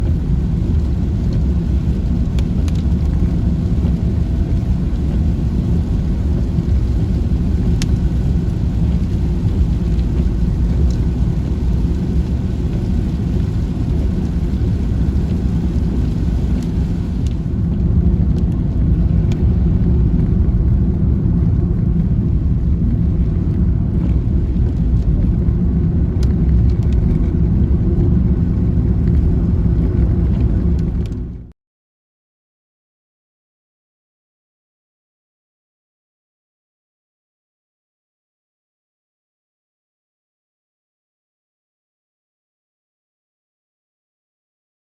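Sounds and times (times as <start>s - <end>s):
vehicle engine and road noise: 0.0s - 31.5s.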